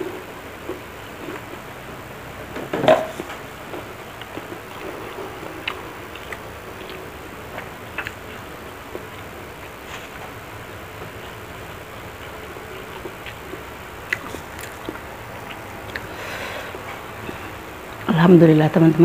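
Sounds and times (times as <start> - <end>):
quiet chewing with mouth clicks: 3.7 - 18.1.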